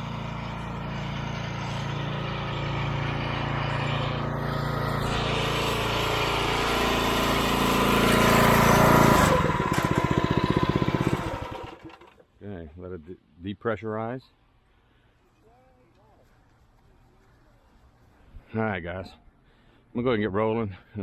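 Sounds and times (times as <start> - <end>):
pressure washer engine running: 0.0 - 12.1.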